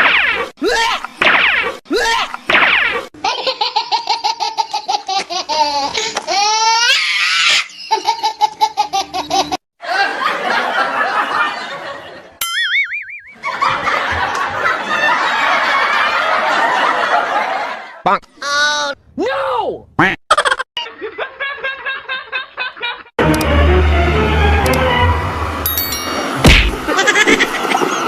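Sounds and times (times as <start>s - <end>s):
belly laugh: 3.2s - 6.9s, 7.6s - 12.4s, 13.4s - 18.0s, 20.3s - 23.2s, 26.9s - 28.0s
several people laughing: 7.7s - 12.4s, 13.4s - 18.0s, 20.3s - 23.1s
short warbling tone: 12.4s - 13.4s.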